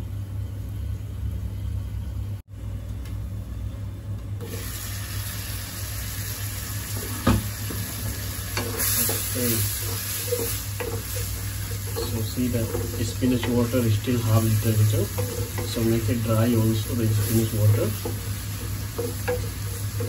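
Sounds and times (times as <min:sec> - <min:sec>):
steady low hum: 0:00.0 - 0:20.0
leaves sizzling in a pan: 0:04.4 - 0:20.0.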